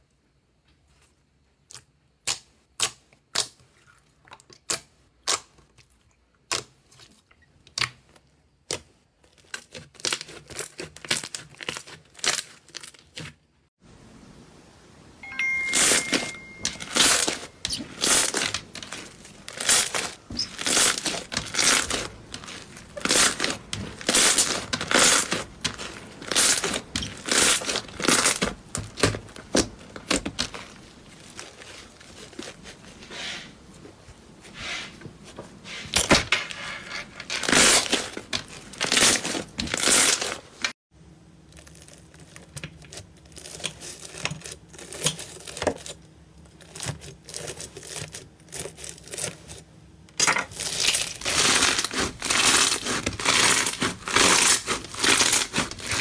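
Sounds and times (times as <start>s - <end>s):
slime squelching by hand: 15.3s - 36.3s, 50.5s - 56.0s.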